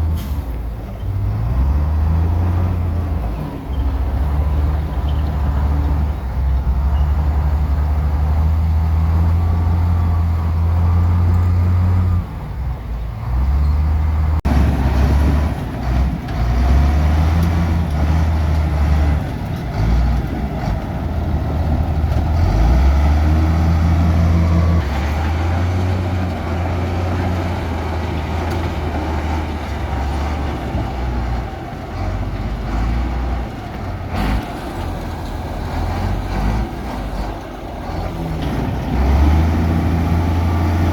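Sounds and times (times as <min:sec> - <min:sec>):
diesel machinery working under load: 0:00.0 - 0:40.9.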